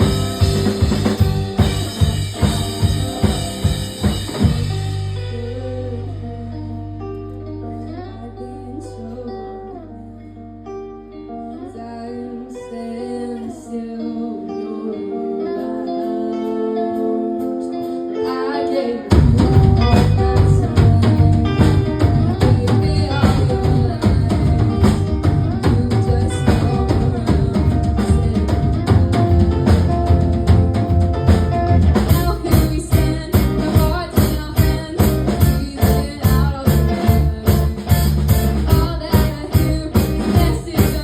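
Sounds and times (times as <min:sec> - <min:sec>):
drums: 0:00.0 - 0:07.1, 0:19.0 - 0:41.0
bass guitar: 0:00.0 - 0:41.0
electric guitar: 0:00.0 - 0:41.0
person singing: 0:04.8 - 0:10.4, 0:11.0 - 0:41.0.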